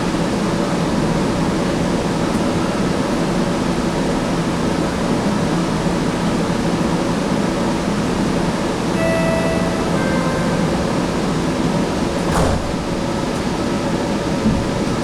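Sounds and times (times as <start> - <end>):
light rail car rumble: 0.0 - 15.0
two-step electronic chime: 9.0 - 11.5.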